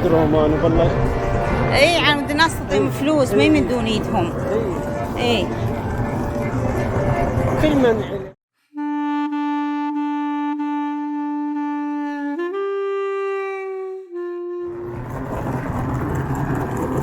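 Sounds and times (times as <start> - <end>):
traffic noise: 0.0 - 8.4, 14.8 - 17.0
reed wind instrument: 0.0 - 15.8.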